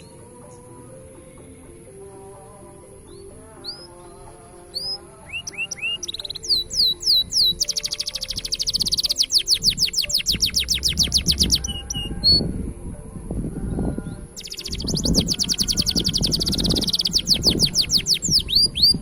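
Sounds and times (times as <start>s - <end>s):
canary trilling: 3.1s - 12.5s, 14.4s - 19.0s.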